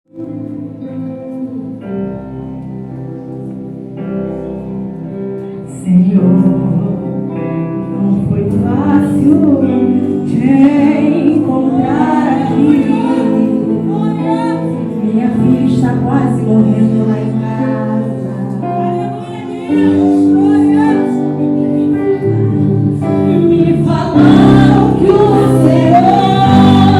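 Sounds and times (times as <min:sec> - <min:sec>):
slow held chords: 0:09.6 - 0:26.9
voices singing: 0:17.6 - 0:26.9.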